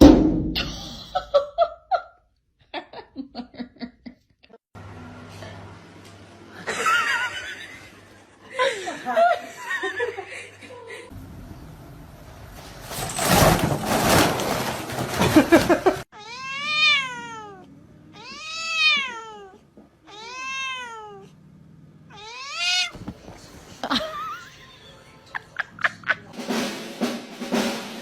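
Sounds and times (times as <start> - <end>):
cat meowing: 16.2 - 21.3, 22.1 - 23.0.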